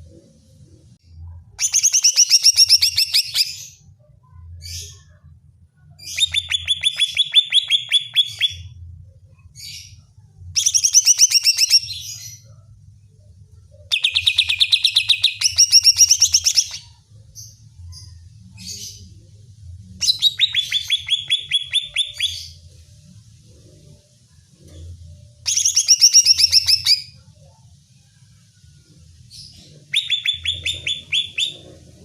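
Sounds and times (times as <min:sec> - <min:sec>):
bird singing chattering notes: 0:30.0 - 0:31.7.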